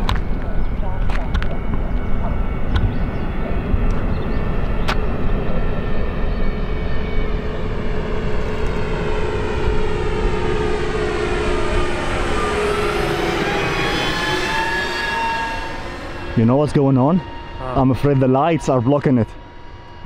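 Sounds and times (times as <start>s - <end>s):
low rumble of wind: 0.0s - 20.0s
model airliner engines whining: 0.0s - 20.0s.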